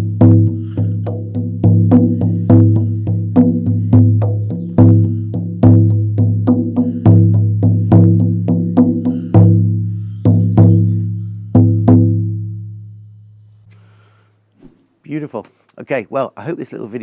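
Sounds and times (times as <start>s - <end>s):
frame drum deep booms: 0.0s - 12.8s.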